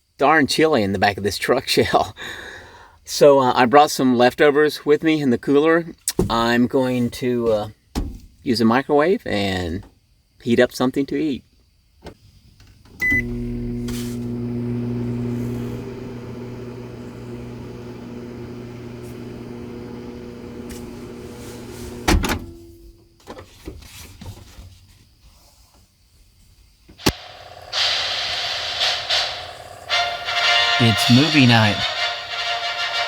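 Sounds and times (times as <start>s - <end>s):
microwave button beep: 13.0s - 13.4s
microwave oven humming: 13.0s - 22.6s, 27.0s - 33.0s
microwave clunk: 13.0s - 22.8s.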